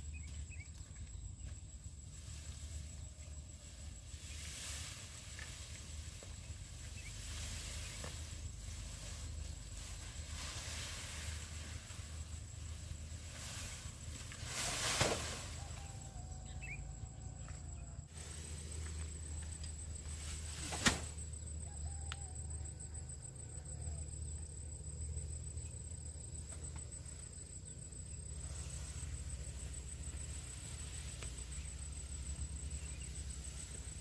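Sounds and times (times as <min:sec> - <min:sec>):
short rustle: 0:06.9 - 0:16.0, 0:18.1 - 0:21.3.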